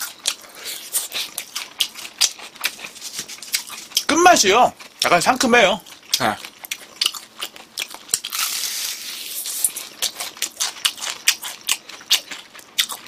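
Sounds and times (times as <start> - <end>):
crunchy chewing: 0.0 - 13.0.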